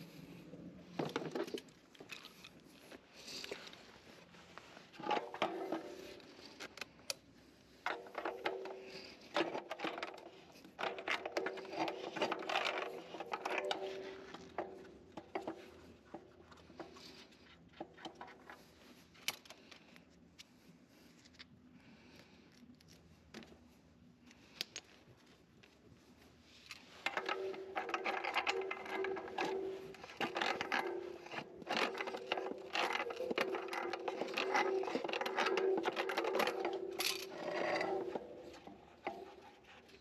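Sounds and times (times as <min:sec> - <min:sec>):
tools clicking and knocking: 0:05.0 - 0:07.2, 0:07.8 - 0:19.8, 0:26.7 - 0:40.0.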